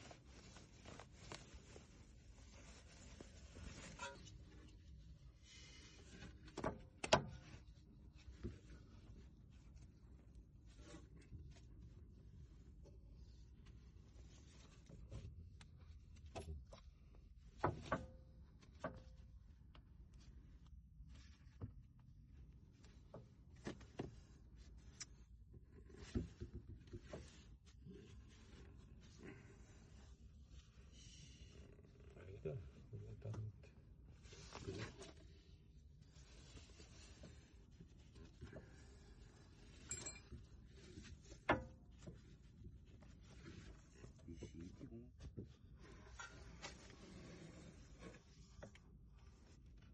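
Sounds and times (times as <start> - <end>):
ringing metallic clink: 39.9 - 40.3.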